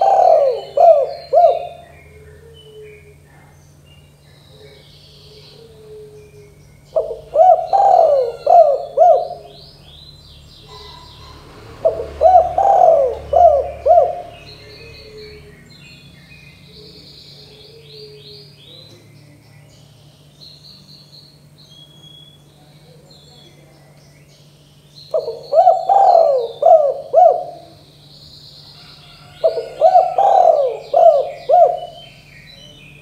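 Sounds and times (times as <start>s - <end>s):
dove cooing: 0.0s - 3.6s, 4.2s - 10.0s, 10.6s - 15.7s, 16.6s - 19.0s, 25.1s - 28.0s, 28.7s - 32.8s
small birds chirping: 0.0s - 33.0s.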